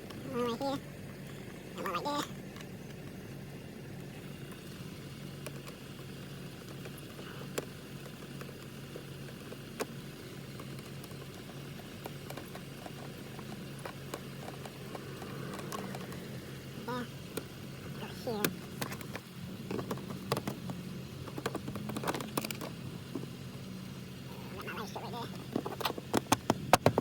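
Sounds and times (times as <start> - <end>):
steady low hum: 0.0 - 27.0
light clicks and taps of parts: 6.6 - 16.3.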